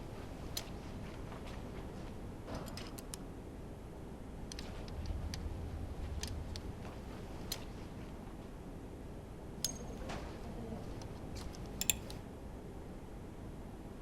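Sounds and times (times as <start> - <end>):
metallic tool clicks and clinks: 9.6 - 10.0, 11.8 - 12.2.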